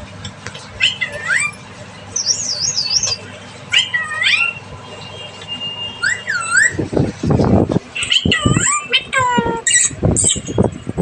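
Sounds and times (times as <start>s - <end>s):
parrot trilling and whistling: 0.8s - 4.6s, 5.6s - 6.8s, 8.0s - 10.7s.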